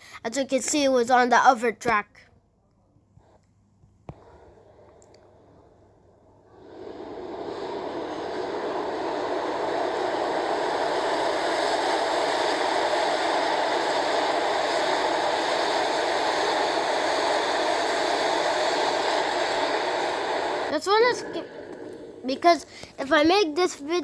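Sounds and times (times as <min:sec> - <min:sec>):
subway train rushing past: 0:06.3 - 0:24.0.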